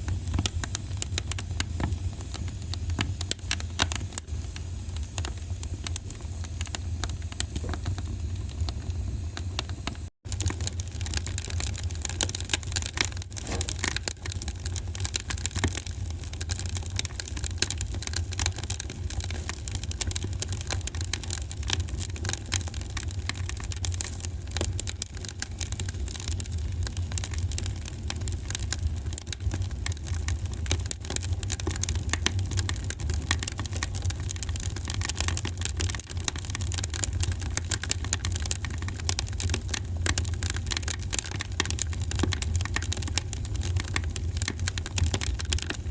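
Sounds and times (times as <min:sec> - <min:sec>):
fire pops and snaps: 0:00.0 - 0:45.9
low rumble of flames: 0:00.0 - 0:45.9.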